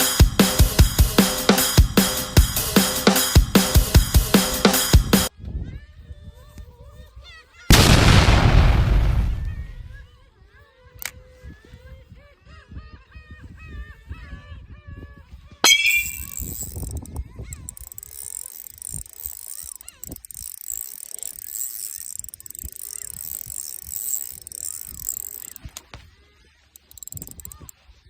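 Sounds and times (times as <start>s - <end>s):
fishing reel click: 15.8s - 26.0s, 26.7s - 27.8s
reel ticking whir: 16.0s - 25.9s, 26.8s - 27.8s.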